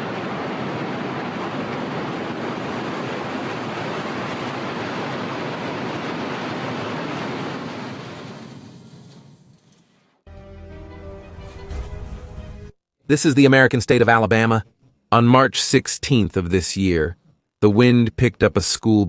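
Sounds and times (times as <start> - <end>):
steady rushing noise: 0.0 - 9.2.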